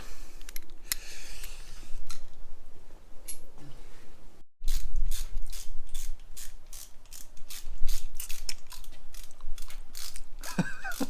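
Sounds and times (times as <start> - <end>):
ratchet wrench clicking: 4.7 - 8.5, 9.1 - 10.2.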